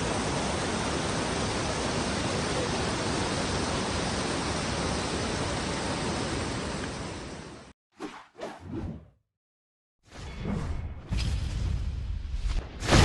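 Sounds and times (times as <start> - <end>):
waterfall rushing: 0.0 - 7.7.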